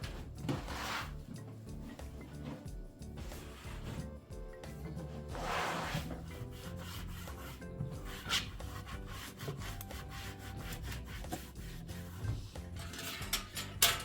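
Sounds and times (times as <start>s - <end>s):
scraping on a hard surface: 0.0s - 4.2s, 5.0s - 14.0s
soft background music: 0.0s - 14.0s.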